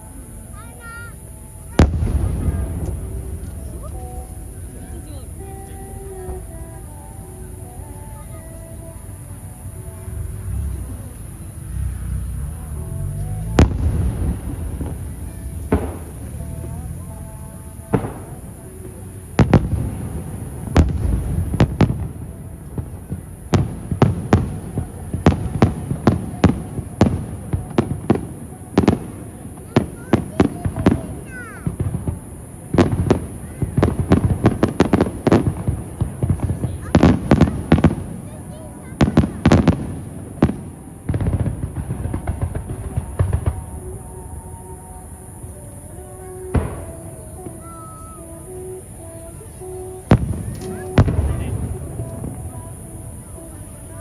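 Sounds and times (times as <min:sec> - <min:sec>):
fireworks bursting with bangs: 0:00.0 - 0:54.0
low rumbling echo: 0:00.0 - 0:54.0.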